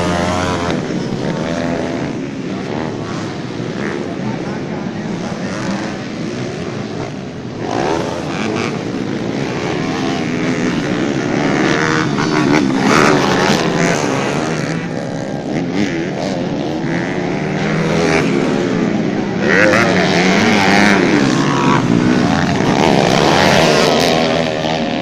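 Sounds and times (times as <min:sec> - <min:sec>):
motocross bikes revving: 0:00.0 - 0:25.0.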